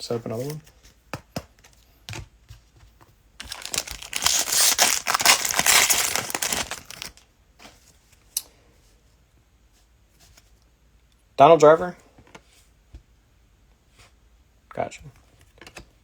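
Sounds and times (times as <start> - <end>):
cellophane wrapper crinkling and tearing: 3.4 - 7.2.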